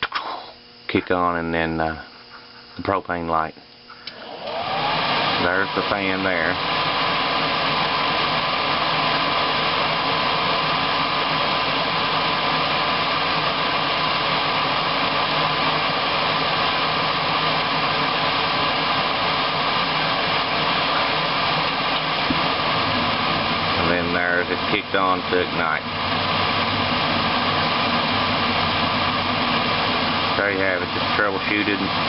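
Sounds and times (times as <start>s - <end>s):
furnace fan whining: 0.0s - 32.0s.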